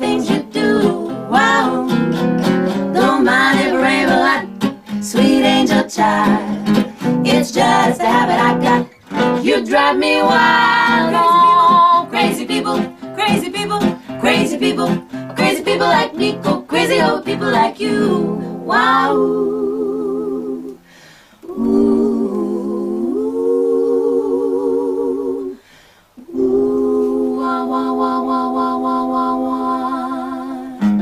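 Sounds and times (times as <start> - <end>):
strummed string accompaniment: 0.0 - 19.2, 30.8 - 31.0
vocal group singing in harmony: 0.0 - 31.0.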